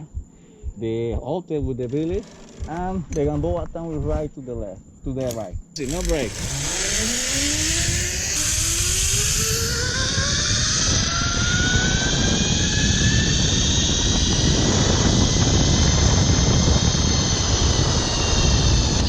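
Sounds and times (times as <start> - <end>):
wind rushing on microphone: 5.5 - 19.0
zipline pulleys whining on cable: 5.8 - 19.0.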